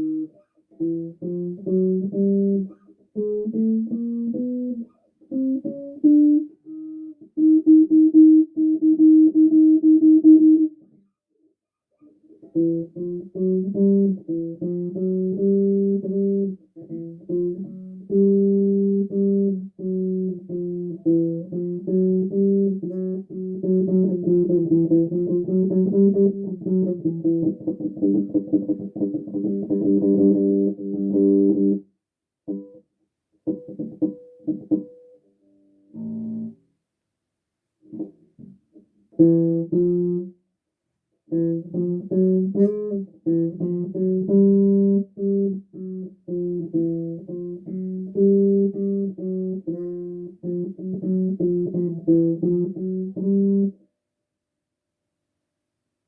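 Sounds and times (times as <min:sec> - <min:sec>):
bass guitar playing: 0:12.6 - 0:31.8, 0:39.2 - 0:40.3, 0:41.3 - 0:53.7.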